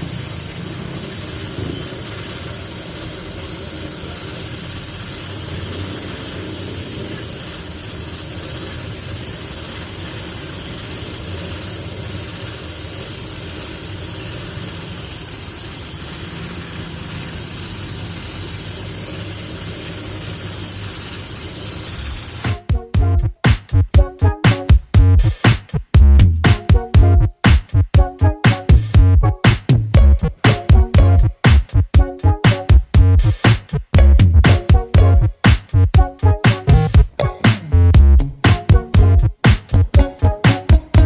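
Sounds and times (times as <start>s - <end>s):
engine running steadily: 0.0s - 22.7s.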